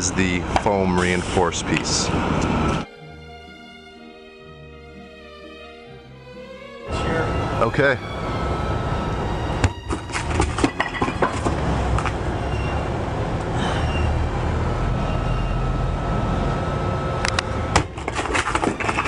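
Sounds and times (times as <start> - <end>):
cinder block striking shelter: 9.6 - 12.2, 17.7 - 19.0
knocks and clatter: 9.6 - 12.2, 17.7 - 19.0.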